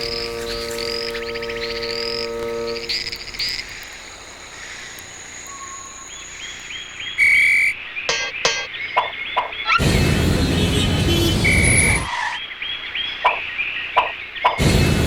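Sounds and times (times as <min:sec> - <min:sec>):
low droning tone: 0:00.0 - 0:04.5
frogs and insects chirping: 0:00.0 - 0:09.9, 0:11.1 - 0:14.8
high insect whine: 0:00.0 - 0:12.4.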